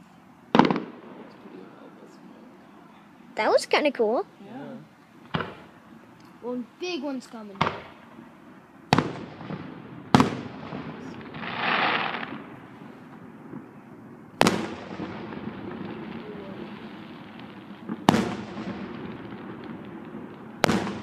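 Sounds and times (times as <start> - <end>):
fireworks booming with echo: 0.0 - 3.6, 5.2 - 6.1, 7.5 - 21.0
firework hiss: 8.9 - 21.0.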